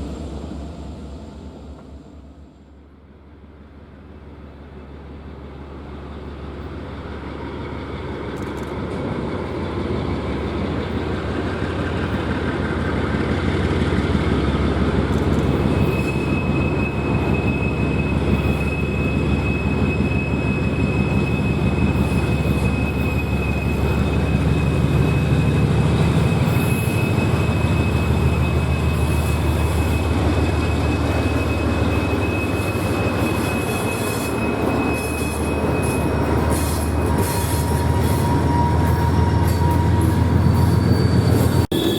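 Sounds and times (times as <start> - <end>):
diesel locomotive rumble: 0.0 - 41.9
high-pitched wheel squeal: 15.4 - 41.9.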